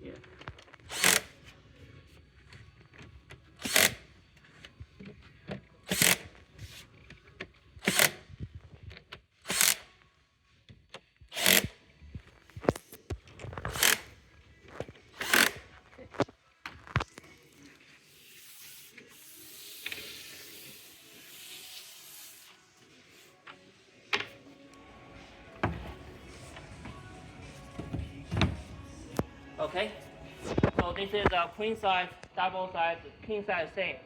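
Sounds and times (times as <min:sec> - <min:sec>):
cordless drill driving screws: 0:00.8 - 0:01.5, 0:03.6 - 0:04.1, 0:05.9 - 0:06.3, 0:07.8 - 0:08.2, 0:09.4 - 0:09.9, 0:11.3 - 0:11.8, 0:13.6 - 0:14.2, 0:15.1 - 0:15.8.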